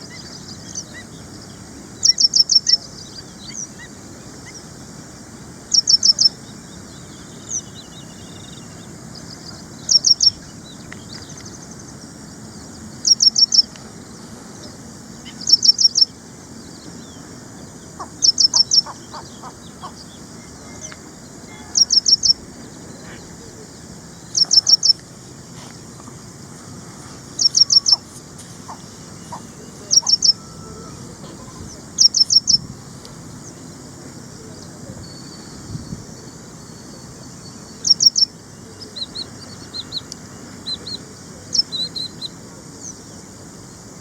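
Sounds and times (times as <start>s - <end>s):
bird singing high phrases: 5.7s - 11.9s, 15.3s - 23.0s, 24.1s - 25.0s, 27.3s - 32.7s, 34.6s - 43.0s.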